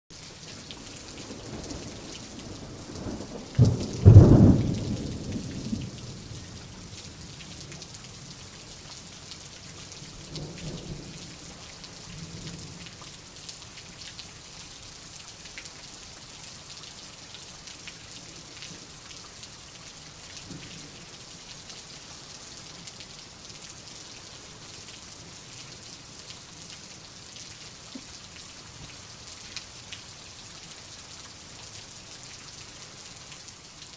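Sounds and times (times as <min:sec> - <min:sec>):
rain hiss: 0:00.2 - 0:33.9
distant rolling thunder: 0:01.2 - 0:06.4
thunder clap and rumble: 0:01.3 - 0:06.3.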